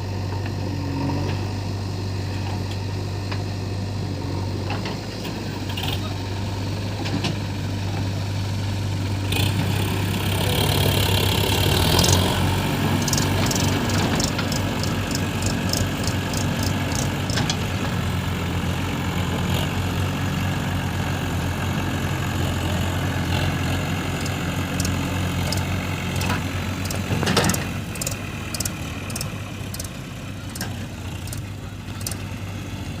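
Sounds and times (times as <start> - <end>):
diesel engine idling: 0.0 - 33.0
sharp ticks: 13.0 - 17.6, 24.2 - 32.2.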